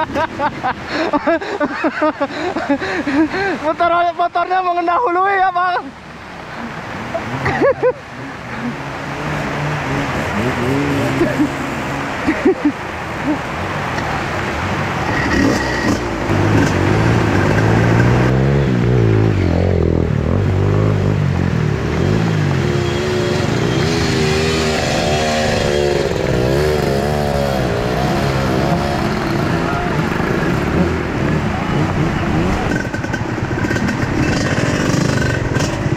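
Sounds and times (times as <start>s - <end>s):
motorcycle engine revving: 7.1s - 12.3s, 15.0s - 35.9s.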